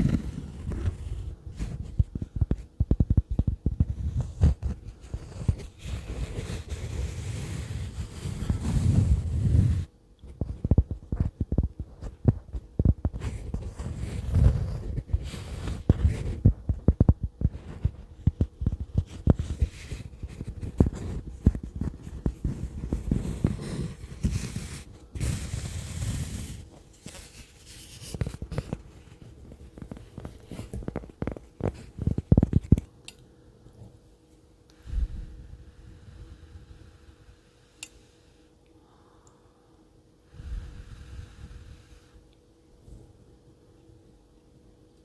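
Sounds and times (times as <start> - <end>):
fingertips tapping microphone: 0.0 - 6.9, 7.7 - 32.9
hissy rubbing noise: 3.1 - 9.9, 13.1 - 32.8.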